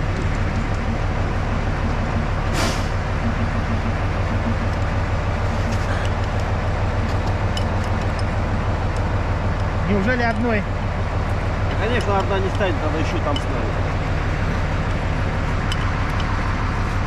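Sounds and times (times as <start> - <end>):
diesel locomotive engine idling: 0.0 - 17.0
air release hiss: 2.5 - 3.0.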